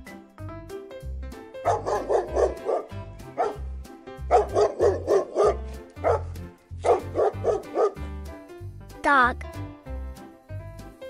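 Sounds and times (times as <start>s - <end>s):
dog barking: 1.6s - 3.6s, 4.3s - 8.0s.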